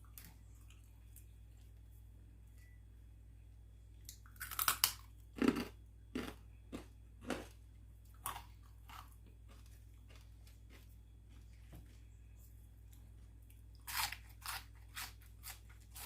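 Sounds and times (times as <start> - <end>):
crunchy bites and chewing: 4.1 - 11.4, 13.7 - 16.0.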